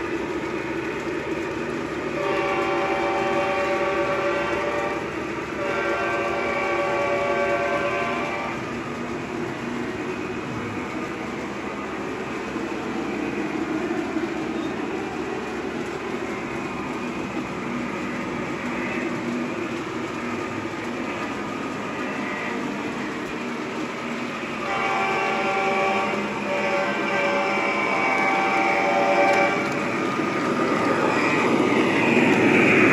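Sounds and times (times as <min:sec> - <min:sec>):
diesel locomotive engine running: 0:00.0 - 0:32.9
train horn: 0:02.1 - 0:08.7, 0:22.0 - 0:23.2, 0:24.5 - 0:29.8, 0:30.9 - 0:32.7.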